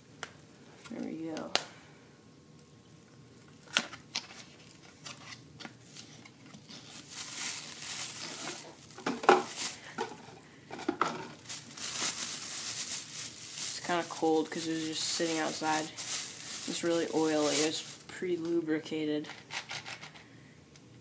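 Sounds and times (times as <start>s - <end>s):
plastic bag crinkling: 3.6s - 18.2s.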